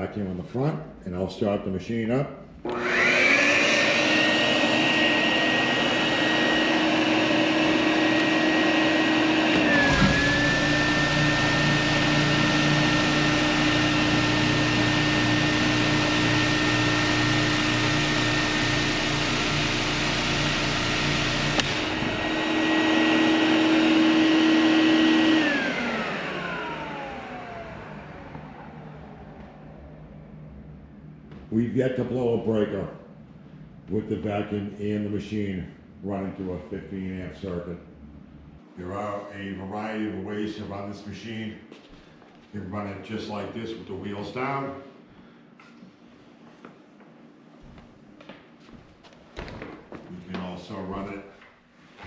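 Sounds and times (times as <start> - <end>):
vacuum whine: 2.5 - 49.6
floor sander motor: 2.6 - 34.1.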